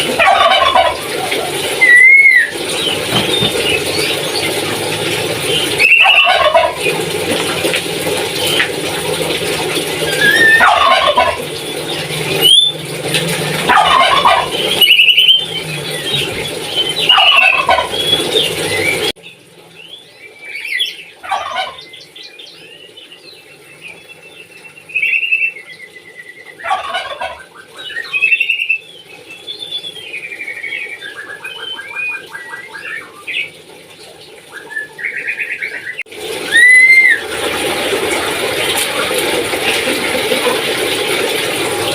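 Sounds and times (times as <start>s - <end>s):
parrot gobbling calls: 0.0s - 4.5s, 5.5s - 7.0s, 10.0s - 12.8s, 13.6s - 19.1s, 20.6s - 21.9s, 26.6s - 28.8s, 36.4s - 37.4s
fast rattling trill: 0.0s - 7.2s, 9.5s - 19.1s
bird chirps and whistles: 1.8s - 2.5s, 5.8s - 6.3s, 12.4s - 12.8s, 14.7s - 19.1s, 34.6s - 37.2s.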